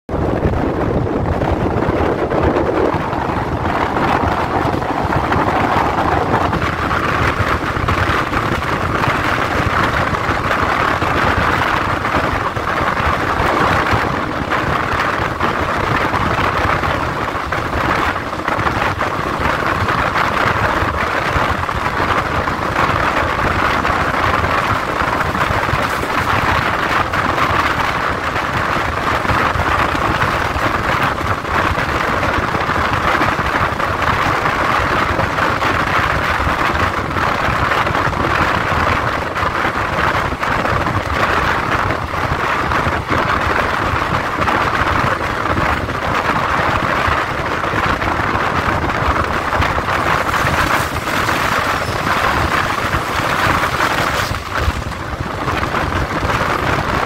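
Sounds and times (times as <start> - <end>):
wind rushing past train window: 0.1 - 57.0
train wheels on rails: 0.2 - 57.0.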